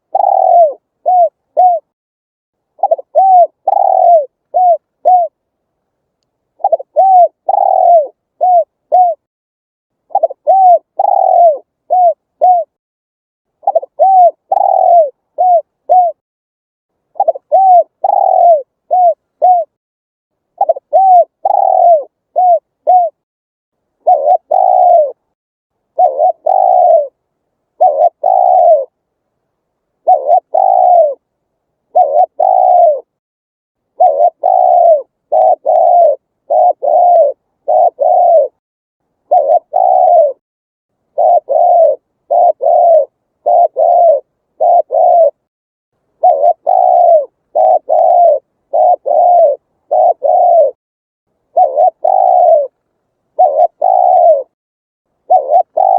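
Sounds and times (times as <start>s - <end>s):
dove cooing: 0.0s - 1.9s, 2.8s - 5.4s, 6.6s - 9.3s, 10.1s - 12.8s, 13.6s - 16.2s, 17.1s - 19.8s, 20.6s - 23.2s, 24.0s - 25.3s, 25.9s - 29.0s, 30.0s - 31.3s, 31.9s - 33.2s, 33.9s - 38.6s, 39.2s - 40.4s, 41.1s - 45.5s, 46.2s - 50.8s, 51.5s - 54.6s, 55.2s - 55.9s.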